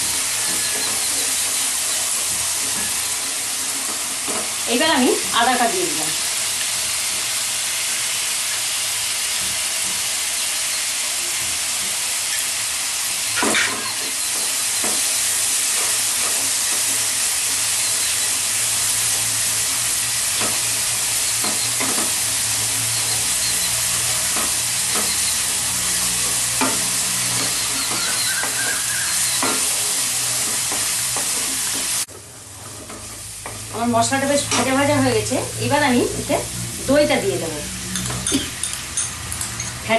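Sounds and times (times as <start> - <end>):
paste sizzling in oil: 0.0 - 39.9
spatula scraping and knocking pan: 13.4 - 34.8.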